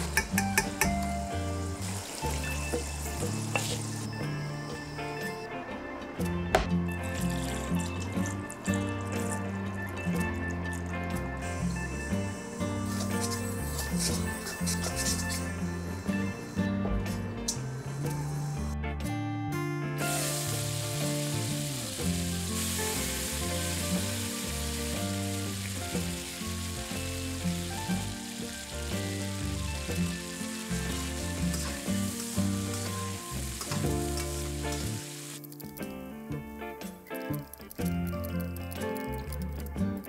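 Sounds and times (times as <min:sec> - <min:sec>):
chicken frying in hot oil: 0:00.0 - 0:04.9, 0:07.1 - 0:16.2, 0:20.0 - 0:35.4
background music: 0:00.0 - 0:40.0.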